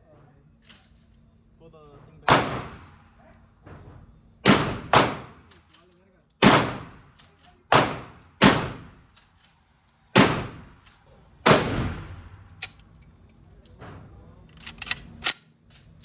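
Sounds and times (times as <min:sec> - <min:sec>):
gunshots with long echo: 0:02.3 - 0:03.0, 0:04.4 - 0:05.4, 0:06.4 - 0:07.1, 0:07.7 - 0:09.0, 0:10.2 - 0:10.8, 0:11.4 - 0:12.5.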